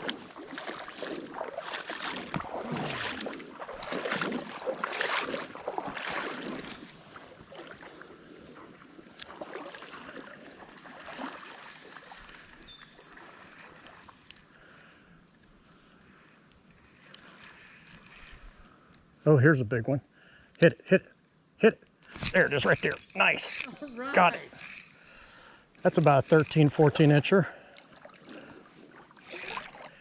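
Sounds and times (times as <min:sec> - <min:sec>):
steady water rush: 0:00.0 - 0:14.8, 0:22.0 - 0:30.0
creek water splashing: 0:00.0 - 0:18.7, 0:21.6 - 0:30.0.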